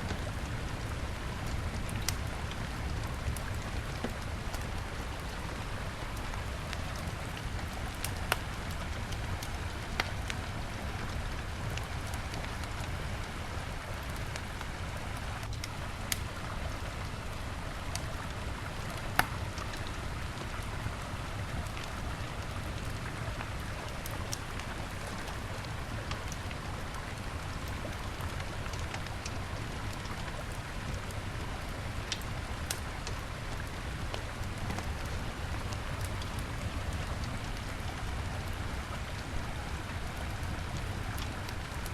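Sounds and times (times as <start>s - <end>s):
wood fire crackling: 0.0s - 41.9s
sharp pops from fire: 19.2s - 19.4s.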